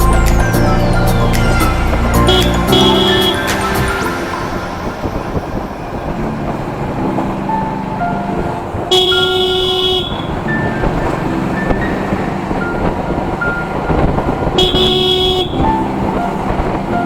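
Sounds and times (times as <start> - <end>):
vehicle horn blaring: 0.0 - 6.3, 8.8 - 11.2, 13.8 - 16.0
road traffic noise: 0.0 - 17.0.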